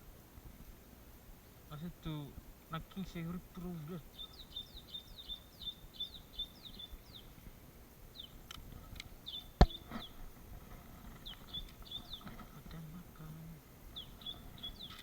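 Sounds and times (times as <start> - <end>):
bird chirping: 1.7 - 15.0
sharp loud click: 9.6 - 10.1.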